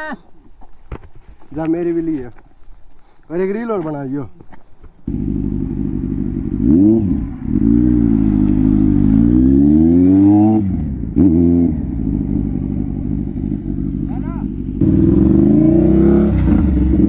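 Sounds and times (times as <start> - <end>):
motorbike engine idling and revving: 4.8 - 17.0.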